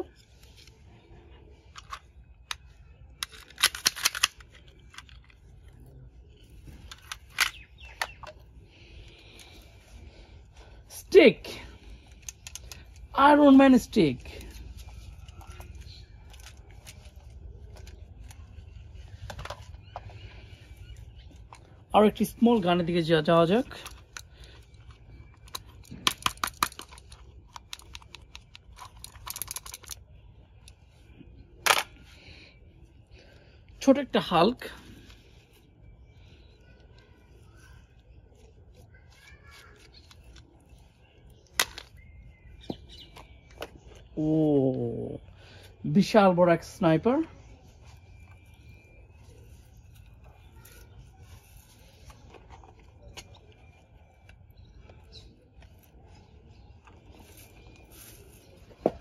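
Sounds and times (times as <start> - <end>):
plastic toy gun clicking: 1.8 - 5.1, 25.5 - 30.0.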